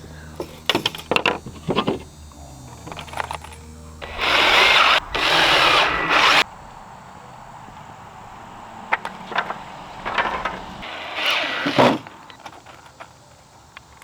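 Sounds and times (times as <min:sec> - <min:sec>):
handling clicks and knocks: 0:00.3 - 0:03.9, 0:08.8 - 0:10.9
power drill driving screw into wood: 0:04.0 - 0:06.4, 0:10.3 - 0:12.4.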